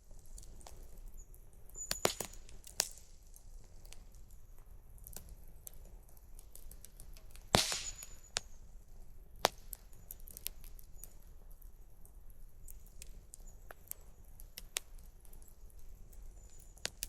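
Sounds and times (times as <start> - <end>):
campfire crackling: 0.0 - 17.0
loud pops from fire: 1.8 - 4.2, 5.0 - 11.2, 16.1 - 17.0.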